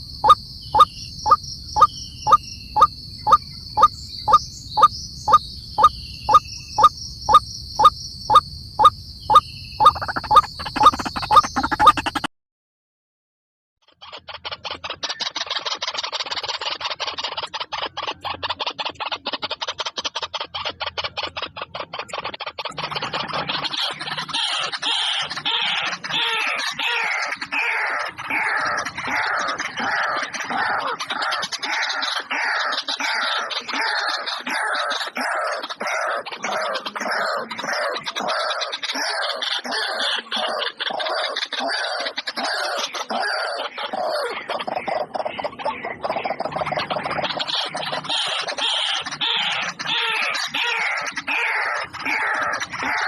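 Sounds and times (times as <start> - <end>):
animal calls: 0.0 - 12.3, 14.1 - 53.0
high-pitched insect drone: 0.0 - 12.3.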